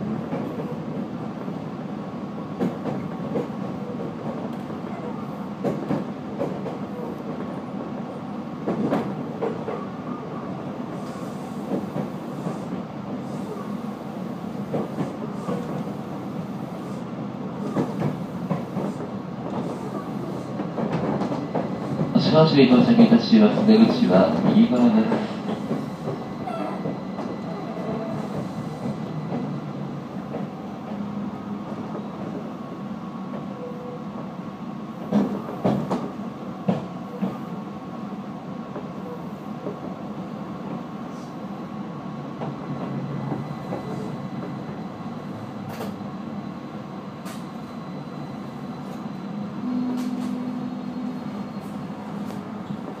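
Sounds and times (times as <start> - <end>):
train wheels rumbling: 10.8 - 32.4.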